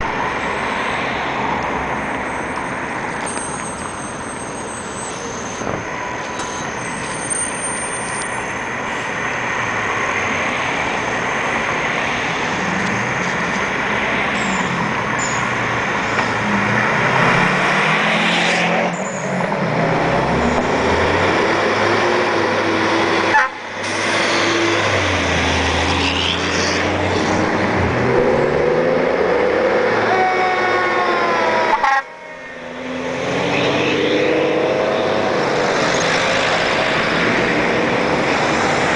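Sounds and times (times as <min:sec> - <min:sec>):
diesel truck engines running: 0:00.0 - 0:30.1.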